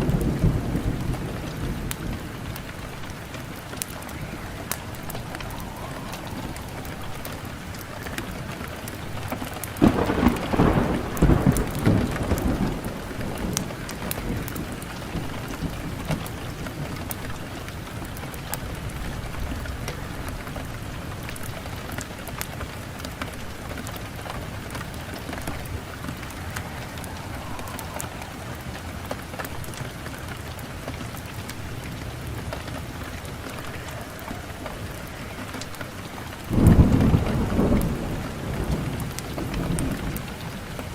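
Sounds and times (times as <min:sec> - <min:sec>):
wood fire crackling and popping: 0:00.0 - 0:40.9
low rumble: 0:03.2 - 0:08.8.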